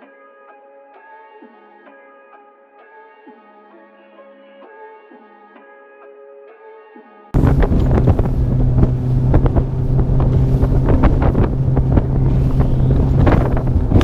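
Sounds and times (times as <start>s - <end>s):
hull slapping on waves: 7.4s - 14.0s
outboard motor running: 7.4s - 14.0s
wind buffeting microphone: 7.4s - 14.0s.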